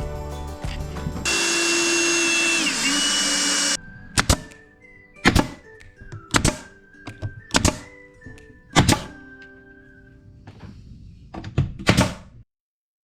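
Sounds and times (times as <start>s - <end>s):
background music: 0.0s - 10.7s
power tool running: 1.3s - 3.8s.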